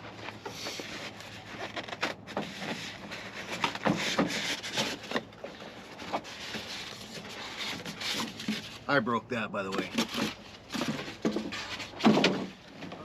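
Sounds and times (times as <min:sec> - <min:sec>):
styrofoam rubbing scrapes: 0:00.5 - 0:05.2, 0:06.1 - 0:08.9.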